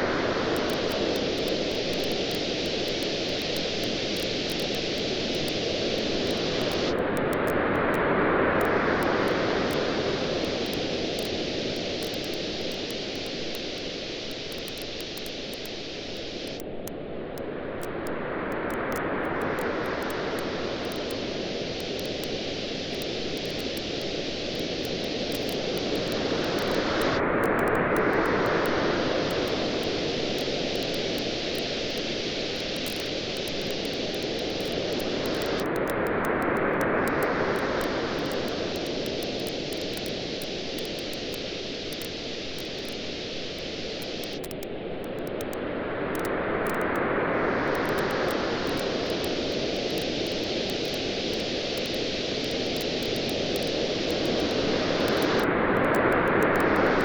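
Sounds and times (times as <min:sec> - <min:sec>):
ocean waves washing onto beach: 0:00.0 - 0:57.0
campfire crackling: 0:10.4 - 0:16.8, 0:18.7 - 0:36.1, 0:36.8 - 0:45.5, 0:47.7 - 0:55.5.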